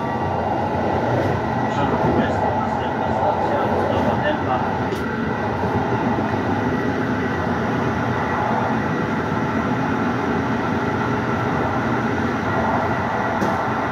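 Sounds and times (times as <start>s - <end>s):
train wheels rolling on rails: 0.0s - 13.9s.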